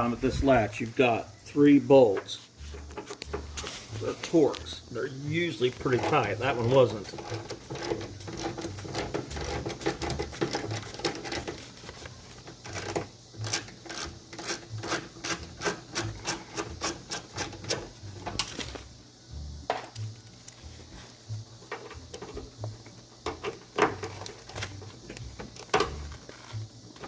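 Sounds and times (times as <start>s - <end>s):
tool scraping and knocking metal: 2.1s - 4.7s, 5.5s - 18.8s, 21.6s - 26.6s
ratchet clicking: 5.8s - 11.6s, 12.6s - 18.6s.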